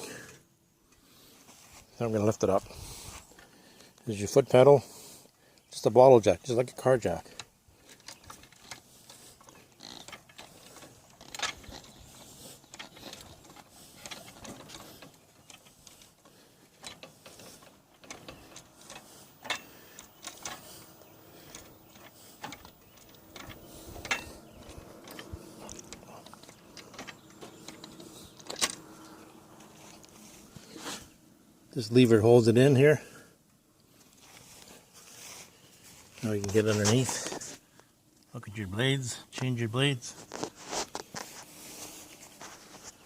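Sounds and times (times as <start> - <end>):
jack pumping clicks and creaks: 2.0 - 31.2, 31.9 - 38.4, 39.1 - 43.0
metal clanks: 7.3 - 29.3.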